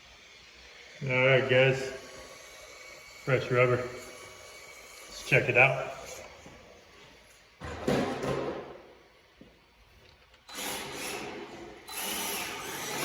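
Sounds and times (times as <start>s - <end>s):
toy car motor whine: 0.0s - 7.6s, 10.4s - 13.0s.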